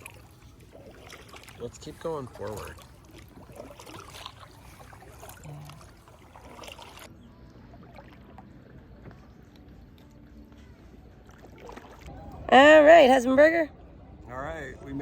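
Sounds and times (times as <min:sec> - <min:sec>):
water dripping off paddles: 0:00.0 - 0:07.1.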